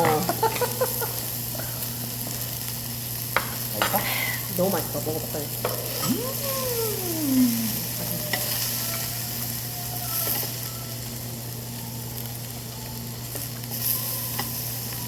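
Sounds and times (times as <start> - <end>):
beef sizzling on a grill: 0.0 - 15.0
voice-like tone sliding down: 6.0 - 8.6.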